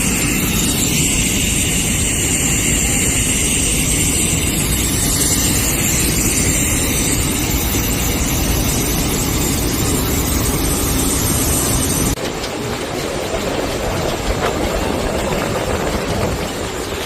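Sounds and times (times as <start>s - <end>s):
pneumatic vacuum cleaner running: 0.0s - 12.2s.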